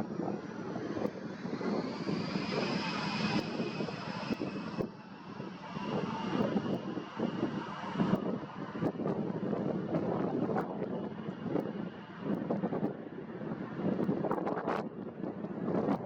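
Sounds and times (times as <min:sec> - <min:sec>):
jet engines whining: 0:00.0 - 0:08.6
wind buffeting microphone: 0:00.0 - 0:16.0.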